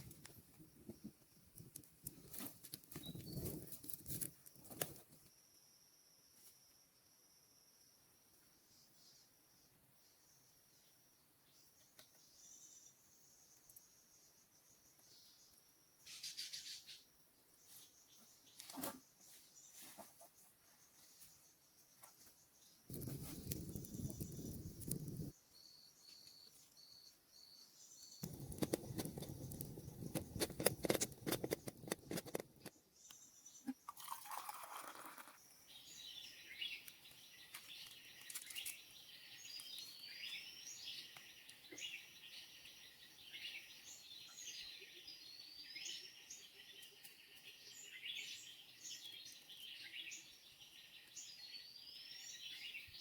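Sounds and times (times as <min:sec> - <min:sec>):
crunching and rustling: 0:01.6 - 0:05.2.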